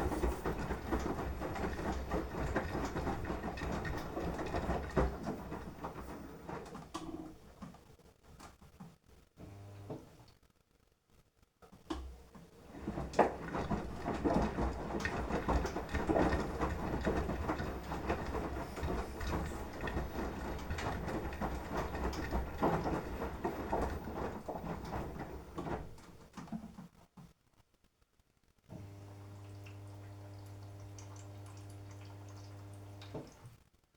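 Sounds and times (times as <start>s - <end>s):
wet laundry tumbling and splashing: 0.0s - 6.9s, 12.6s - 26.6s
washing machine drum motor: 0.0s - 7.7s, 12.0s - 26.7s, 28.8s - 33.5s.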